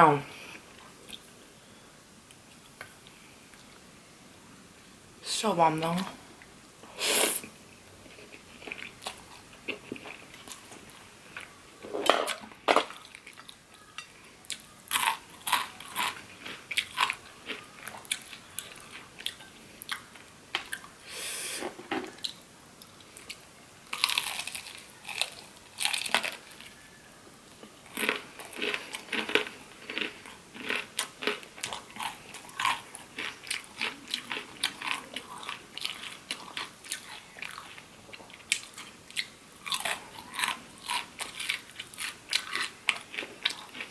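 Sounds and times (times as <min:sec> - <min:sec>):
person chewing food: 0:08.0 - 0:11.6, 0:12.9 - 0:21.0, 0:21.7 - 0:26.8, 0:27.5 - 0:43.9.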